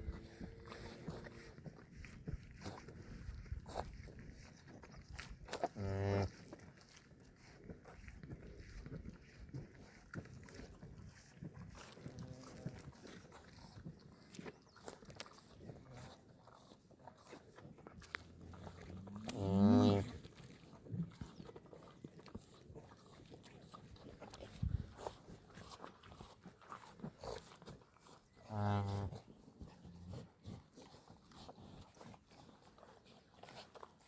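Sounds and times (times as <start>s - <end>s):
cow mooing: 5.8s - 6.3s, 18.9s - 20.1s.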